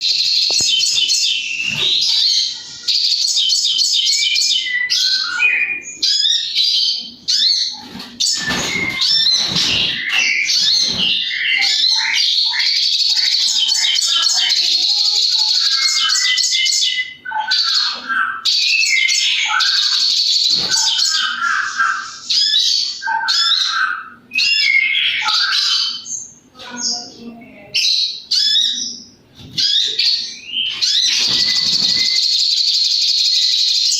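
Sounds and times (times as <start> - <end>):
bird calling with rattling trills: 29.6 - 33.9.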